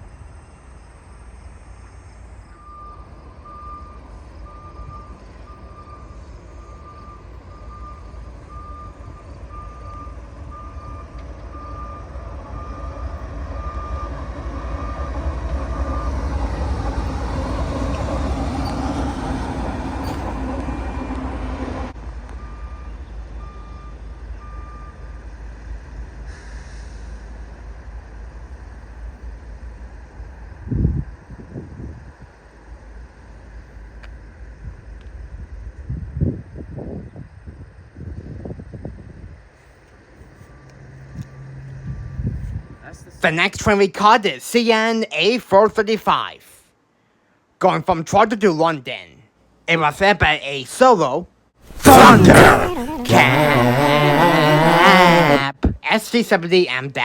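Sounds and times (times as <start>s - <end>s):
diesel locomotive rumble: 0.0s - 43.2s.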